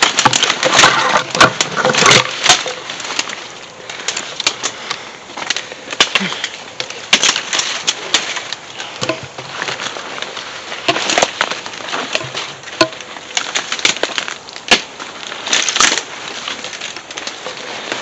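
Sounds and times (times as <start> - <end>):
footsteps crunching dry leaves: 0.0 - 18.0
twigs snapping: 0.0 - 18.0.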